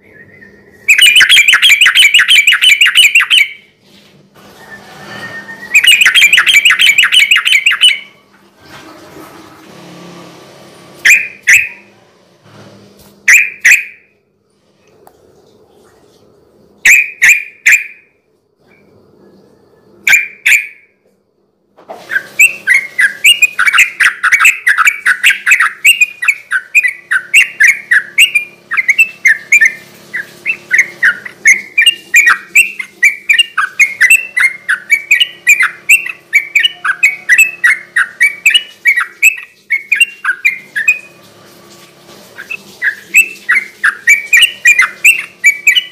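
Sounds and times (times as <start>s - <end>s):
bird singing: 0.0s - 3.7s, 5.2s - 8.2s, 11.1s - 11.9s, 13.3s - 14.1s, 16.8s - 21.0s, 22.2s - 41.2s, 42.4s - 45.9s.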